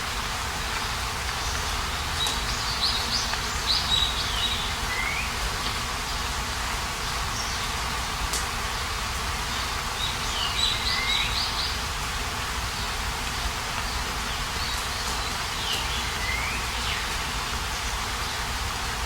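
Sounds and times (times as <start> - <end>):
steady hiss of wind or insects: 0.0 - 19.0
songbird singing: 1.3 - 5.4, 9.5 - 11.9, 12.7 - 18.4.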